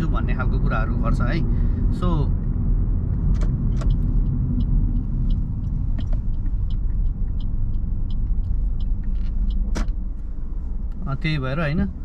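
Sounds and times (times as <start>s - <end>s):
car rumbling: 0.0s - 12.0s
light ticks: 3.3s - 10.0s.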